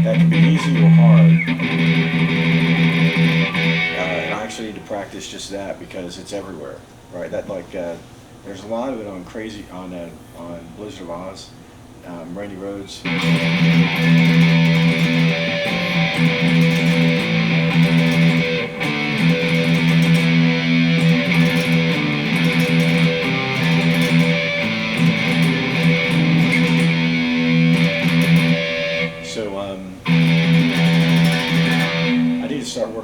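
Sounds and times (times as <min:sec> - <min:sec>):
electric guitar riff: 0:00.0 - 0:05.1, 0:13.0 - 0:32.9.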